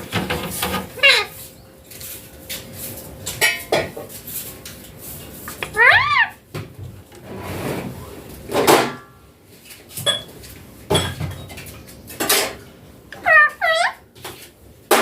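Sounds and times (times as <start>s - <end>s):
parrot squawking: 0.9s - 1.5s, 5.6s - 6.4s, 13.2s - 14.1s.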